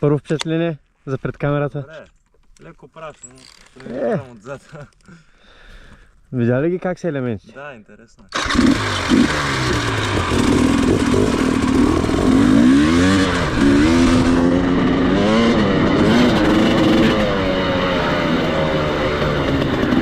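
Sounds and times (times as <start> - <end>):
dirt bike engine revving: 8.3 - 20.0.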